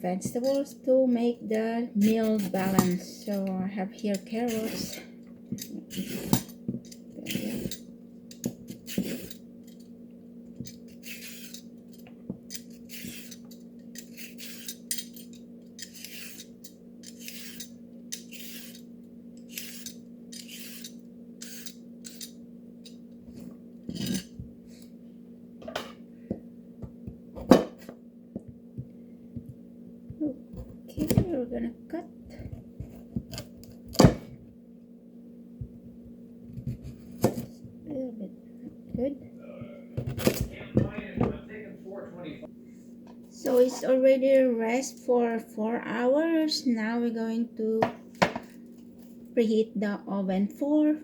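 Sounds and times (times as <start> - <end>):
steady low hum: 0.0 - 51.0
carrot peeling scrapes: 2.0 - 3.5, 4.1 - 9.4, 10.6 - 22.4
knocks on worktop: 47.8 - 48.4.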